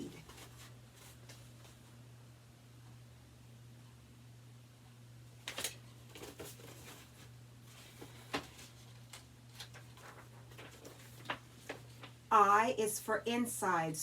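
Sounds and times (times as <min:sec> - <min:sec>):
book pages rustling: 0:00.2 - 0:01.9, 0:05.4 - 0:12.2.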